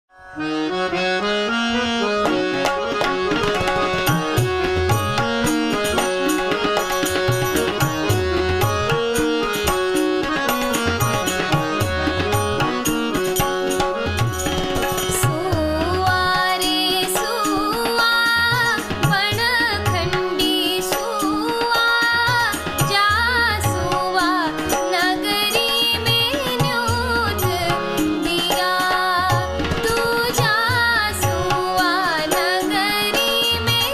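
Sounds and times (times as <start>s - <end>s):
tabla strokes: 2.2s - 33.9s
woman singing: 15.0s - 33.9s.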